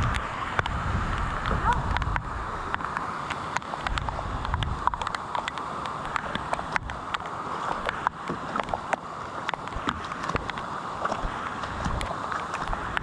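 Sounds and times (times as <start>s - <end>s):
rain on water hiss: 0.0s - 13.0s
raindrops tapping camera: 0.0s - 13.0s.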